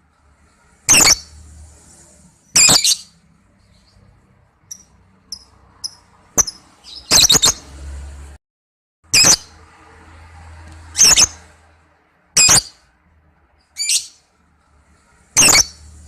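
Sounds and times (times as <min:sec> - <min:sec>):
lovebird shrill screeches: 0:00.9 - 0:01.3, 0:02.5 - 0:03.1, 0:05.8 - 0:07.6, 0:10.9 - 0:11.4, 0:12.4 - 0:12.8, 0:15.4 - 0:15.8
lovebird high chirps: 0:00.9 - 0:01.4, 0:02.4 - 0:04.0, 0:04.6 - 0:07.7, 0:09.2 - 0:09.5, 0:10.9 - 0:11.4, 0:12.4 - 0:12.8, 0:13.7 - 0:14.2, 0:15.4 - 0:15.9.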